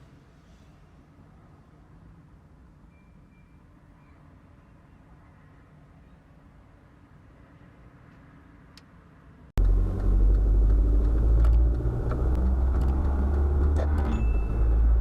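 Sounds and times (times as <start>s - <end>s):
car rumbling on the move: 9.6s - 15.0s.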